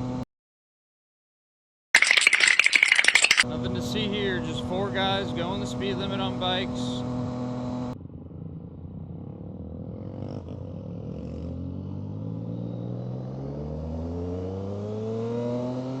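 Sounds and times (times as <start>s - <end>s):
vehicle engine accelerating: 6.8s - 16.0s.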